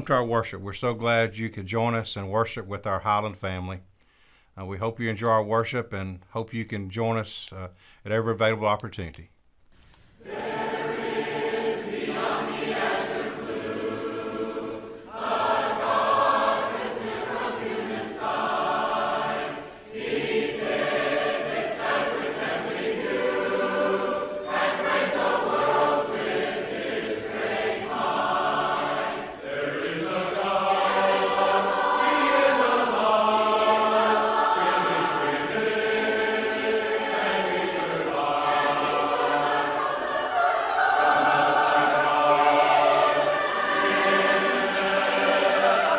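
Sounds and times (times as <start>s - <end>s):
congregation singing a hymn: 10.2s - 45.9s.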